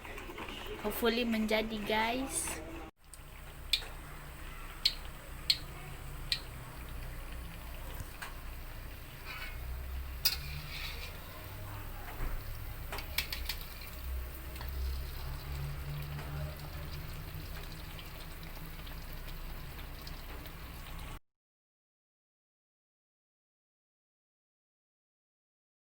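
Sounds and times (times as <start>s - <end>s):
batter sizzling in hot oil: 3.0s - 21.2s.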